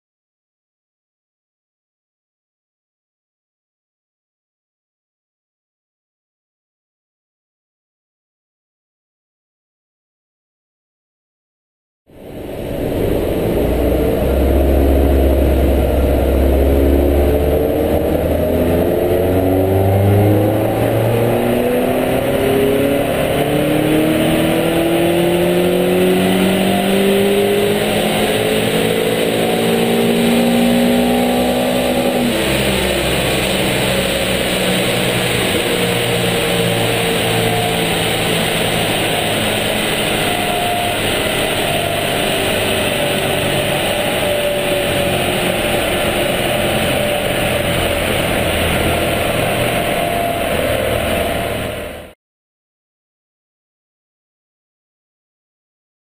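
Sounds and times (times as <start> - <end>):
car engine revving under load: 12.2 - 52.1.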